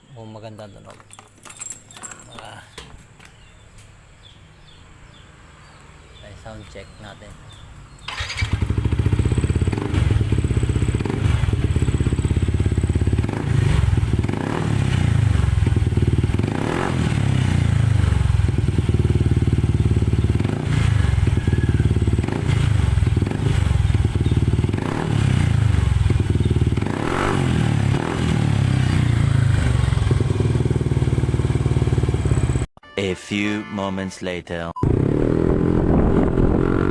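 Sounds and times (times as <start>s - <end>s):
scooter engine running: 8.1s - 16.6s, 17.2s - 27.0s, 27.8s - 32.7s.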